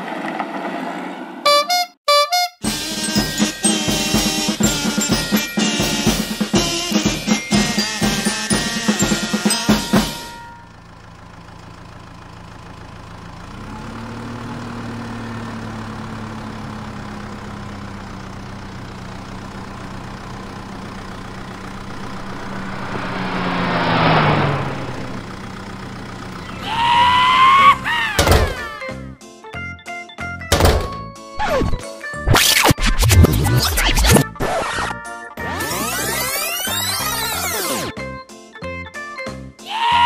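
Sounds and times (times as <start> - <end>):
heavy vehicle engine: 2.6 - 29.1.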